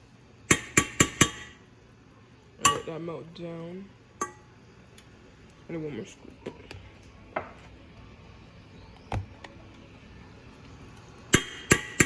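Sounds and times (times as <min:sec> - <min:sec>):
spoon tapping a pot rim: 0:02.7 - 0:02.9, 0:04.2 - 0:04.5.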